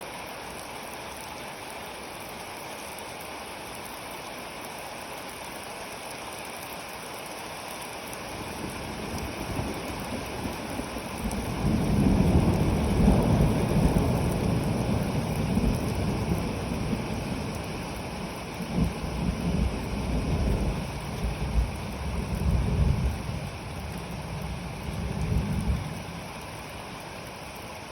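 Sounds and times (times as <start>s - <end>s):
steady rain falling: 0.0s - 27.9s
low roll of thunder: 8.4s - 26.7s.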